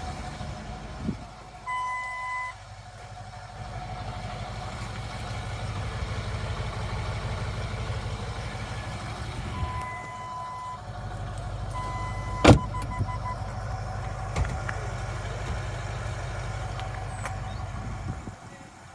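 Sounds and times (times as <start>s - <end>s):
diesel engine idling: 0.0s - 18.9s
sharp thump: 12.4s - 13.0s.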